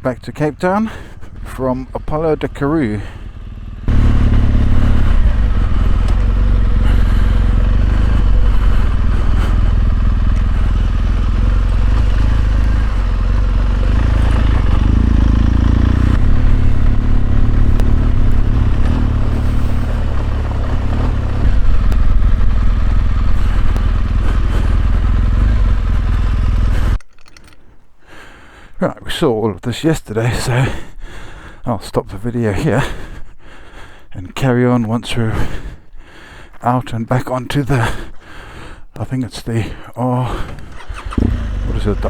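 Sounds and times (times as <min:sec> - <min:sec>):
wind and road noise: 0:00.0 - 0:28.0, 0:40.4 - 0:42.0
motorcycle engine running: 0:00.1 - 0:27.0, 0:40.7 - 0:42.0.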